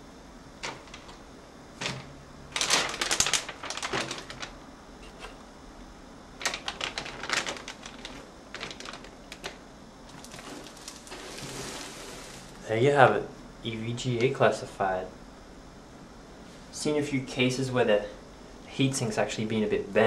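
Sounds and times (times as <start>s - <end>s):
packaging crackling and clicking: 1.8s - 4.6s, 6.4s - 12.6s.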